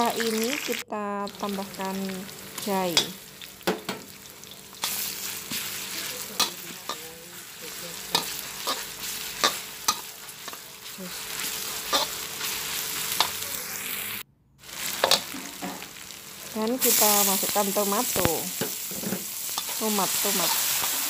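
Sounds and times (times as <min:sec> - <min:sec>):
food sizzling in hot oil: 0:00.0 - 0:21.0
metal spatula scraping a pan: 0:04.8 - 0:13.5.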